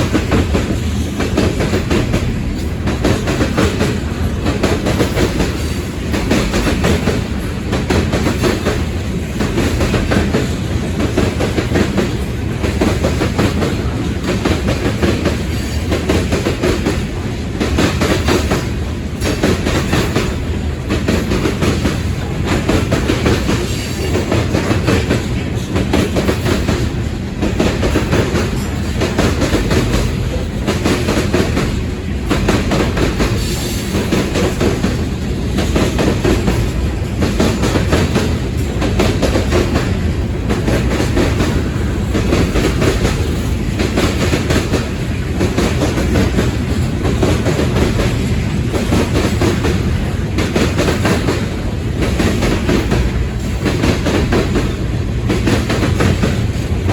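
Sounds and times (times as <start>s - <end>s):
freight train wheels clicking: 0.0s - 56.9s
train rumble: 0.0s - 56.9s.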